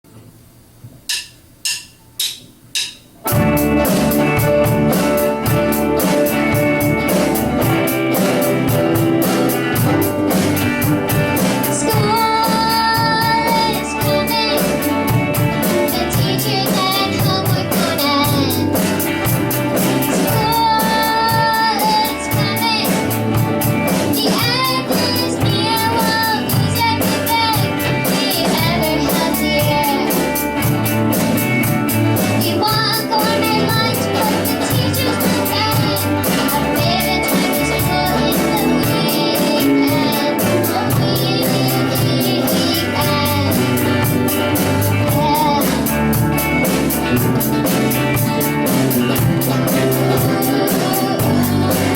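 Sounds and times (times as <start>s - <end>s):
guitar: 0.1s - 51.9s
drum kit cymbal beat: 0.8s - 51.9s
child singing: 9.2s - 30.7s, 32.1s - 46.4s, 49.1s - 51.9s.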